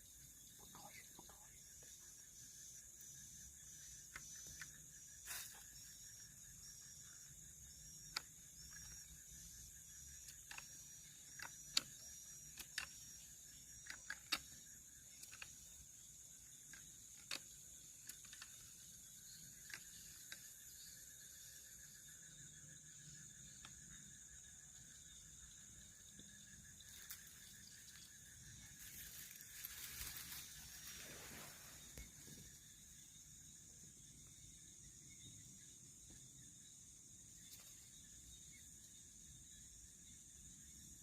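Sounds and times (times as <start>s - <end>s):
insect repeating chirp: 0.0s - 41.0s
insects high-pitched drone: 0.0s - 41.0s
sharp clicks: 10.2s - 15.7s.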